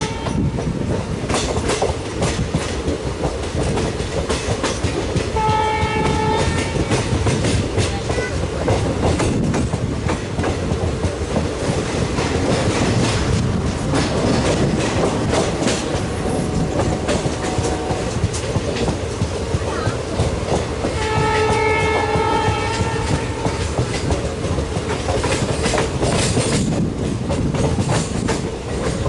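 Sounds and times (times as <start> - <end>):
train wheels clicking over rail joints: 0.0 - 29.0
locomotive horn: 5.4 - 7.1, 16.1 - 18.2, 20.9 - 23.8.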